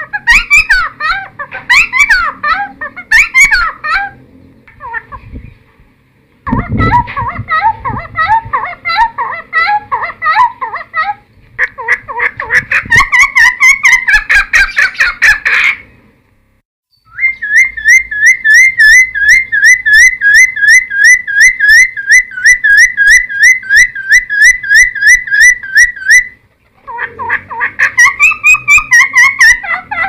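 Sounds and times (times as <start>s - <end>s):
bird singing whistled notes: 16.9s - 26.4s.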